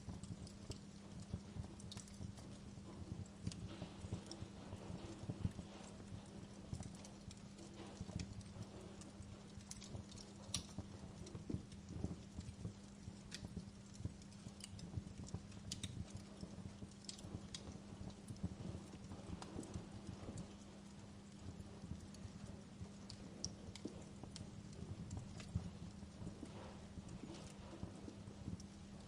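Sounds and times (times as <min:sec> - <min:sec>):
low rumble of burning logs: 0:00.0 - 0:29.0
wood fire pops and snaps: 0:00.0 - 0:29.0.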